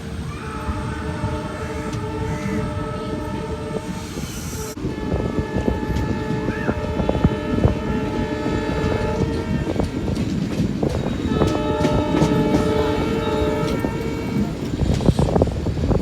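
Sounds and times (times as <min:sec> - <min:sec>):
train droning tone: 0:00.0 - 0:16.0
wheels clacking over rail joints: 0:05.0 - 0:16.0.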